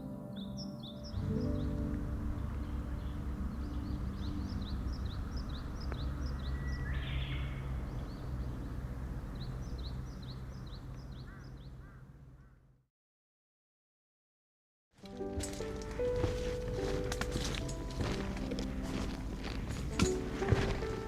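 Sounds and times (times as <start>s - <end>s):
small birds chirping: 0.0s - 12.7s, 15.3s - 21.0s
steady low rumble: 1.2s - 12.3s.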